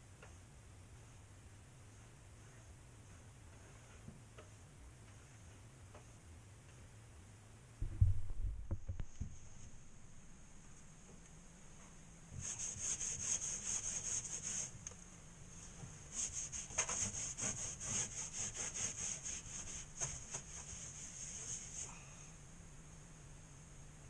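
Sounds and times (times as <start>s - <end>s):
hand sanding drywall: 0.9s - 6.2s, 12.3s - 14.8s, 15.6s - 22.0s.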